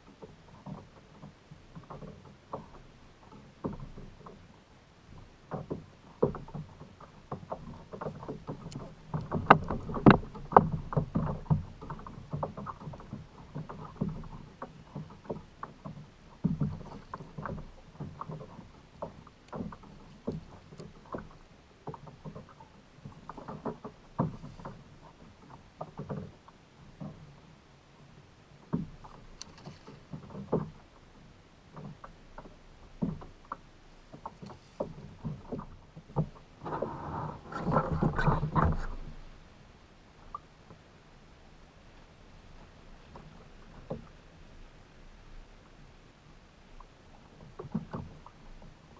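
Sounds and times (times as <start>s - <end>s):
small knocks and splashes: 0.0s - 4.5s, 5.1s - 27.5s, 28.6s - 39.4s
water lapping against hull: 0.0s - 48.9s.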